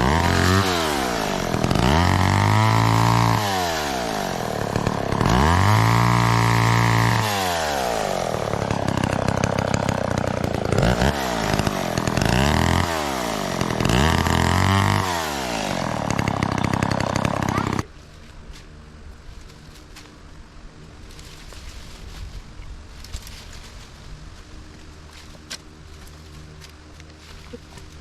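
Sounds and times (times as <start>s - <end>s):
chainsaw engine revving: 0.0s - 17.9s.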